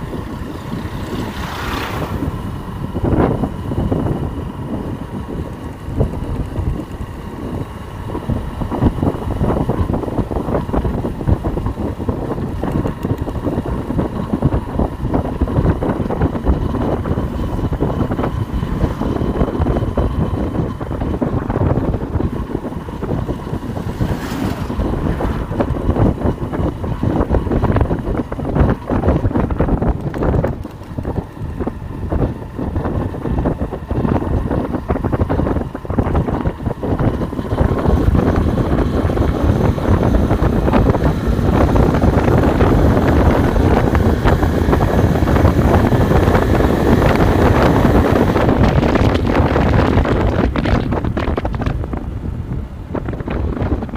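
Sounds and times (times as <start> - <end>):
motorcycle engine running: 0.0 - 53.9
wind buffeting microphone: 0.0 - 53.9.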